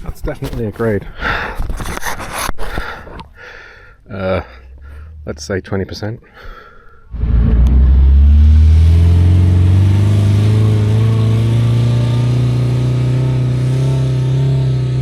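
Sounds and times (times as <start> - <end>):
vehicle engine accelerating: 7.1 - 15.0.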